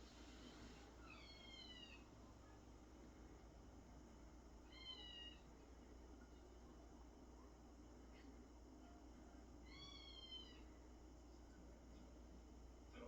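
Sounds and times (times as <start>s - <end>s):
high-pitched cat meows: 4.7s - 5.4s.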